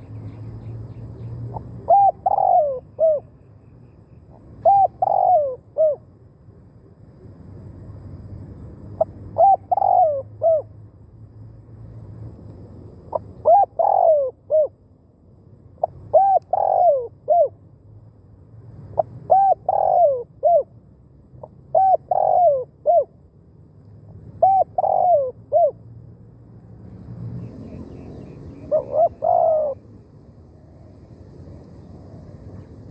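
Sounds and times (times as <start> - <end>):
dove cooing: 1.4 - 3.3, 4.4 - 6.1, 9.0 - 10.7, 13.1 - 14.8, 15.8 - 17.6, 19.0 - 20.7, 21.4 - 23.2, 24.4 - 25.8, 27.4 - 29.9.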